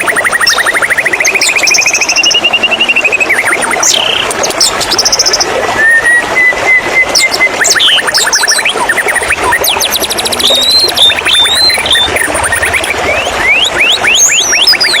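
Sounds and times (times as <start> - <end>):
running water rushing: 0.0 - 15.0
songbird trills and whistles: 0.0 - 15.0.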